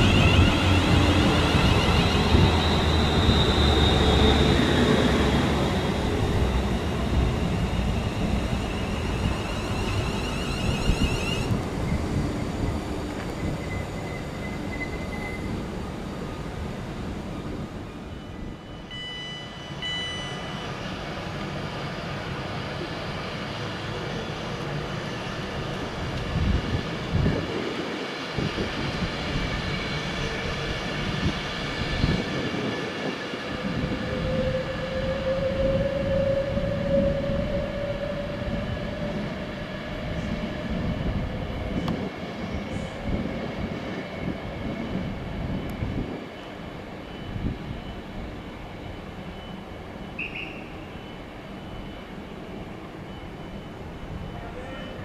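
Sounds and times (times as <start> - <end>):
rising train whine: 0.0 - 55.0
train rumbling through station: 0.0 - 55.0
short high beeps: 18.7 - 20.6.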